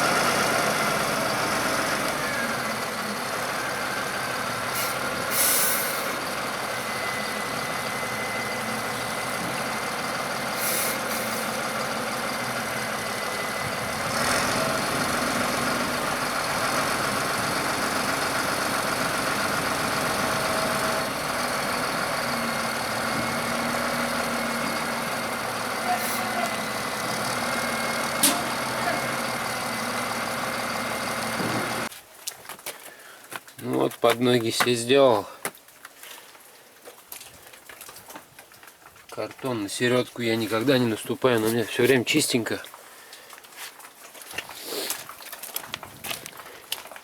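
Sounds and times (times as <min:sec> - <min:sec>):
tractor engine running: 0:00.0 - 0:31.9.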